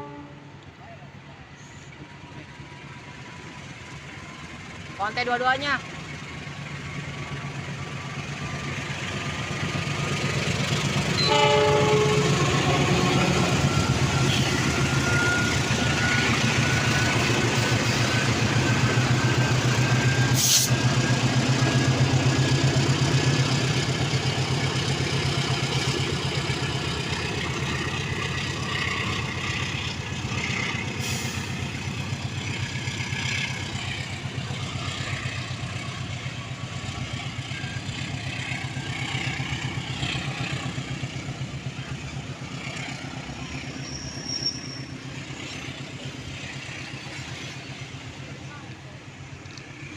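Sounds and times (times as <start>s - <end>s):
train horn blast: 0.0s - 0.6s, 11.2s - 13.6s
train rumbling past: 0.0s - 49.9s.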